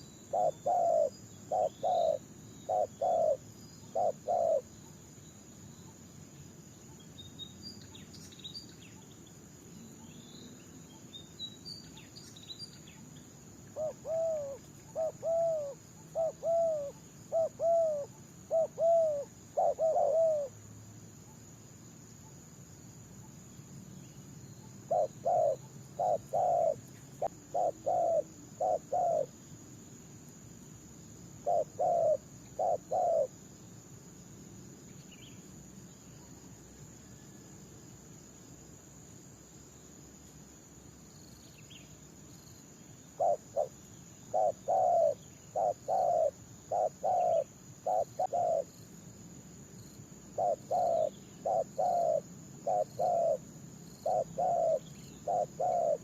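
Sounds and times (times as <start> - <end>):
doves cooing: 0.0 - 4.7, 13.7 - 20.6, 24.9 - 29.3, 31.4 - 33.3, 43.2 - 48.7, 50.4 - 53.4, 54.0 - 56.0
faint small-bird chirps: 0.0 - 20.5, 23.1 - 29.3, 34.8 - 37.8, 41.1 - 48.9, 49.8 - 56.0.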